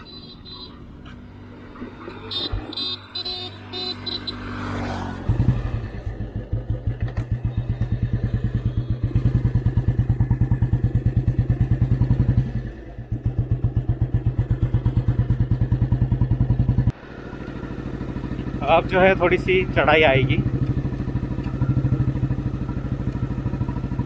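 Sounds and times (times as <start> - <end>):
motorcycle engine thumping: 4.7 - 24.0
steady drone: 16.6 - 24.0.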